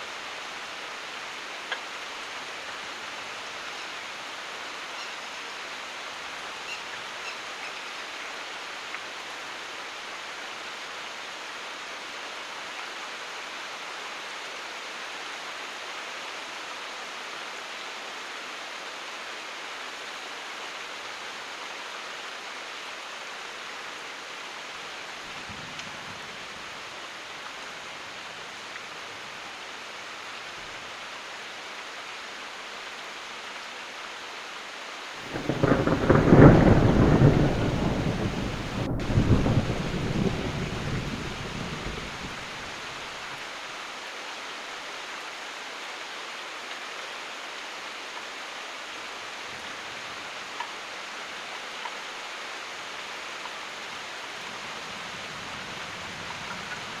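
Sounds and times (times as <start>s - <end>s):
steady rain: 0.0s - 57.0s
distant thunder rumble: 35.2s - 42.8s.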